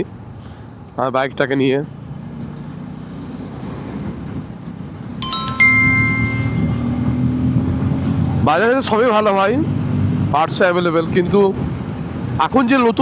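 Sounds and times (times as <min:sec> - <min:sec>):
bright metallic chime: 0:05.2 - 0:07.2.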